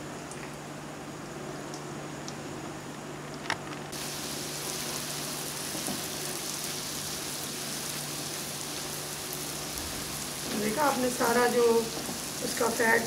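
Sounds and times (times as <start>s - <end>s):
oil sizzling in a pan: 3.9s - 13.0s.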